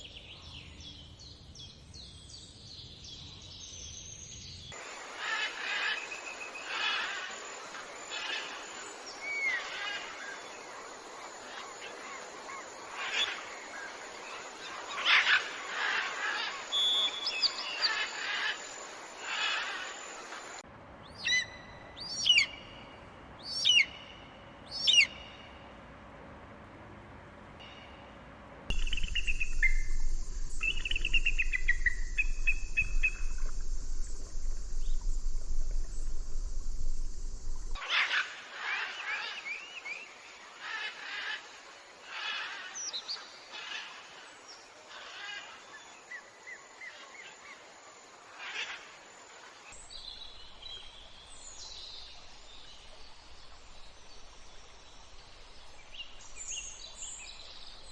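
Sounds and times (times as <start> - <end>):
steady hiss: 3.5 - 20.8, 28.6 - 57.9
bird trilling song: 14.7 - 18.6, 21.1 - 25.5, 28.7 - 33.7
birds chirping: 28.7 - 41.4.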